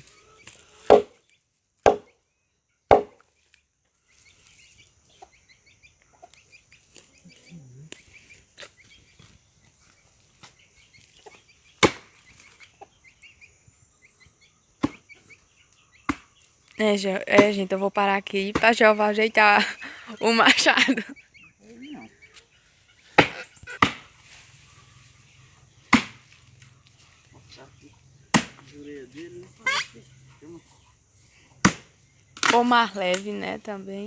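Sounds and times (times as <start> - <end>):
chickens clucking: 0.0 - 1.2, 4.1 - 33.3
axe knocking on wood: 0.9 - 1.2, 1.9 - 2.1, 2.9 - 3.2, 28.3 - 28.6.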